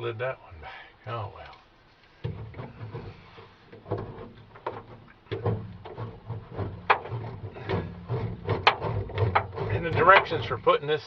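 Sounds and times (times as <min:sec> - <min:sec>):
knocks and thumps on metal panel: 0:02.2 - 0:10.7.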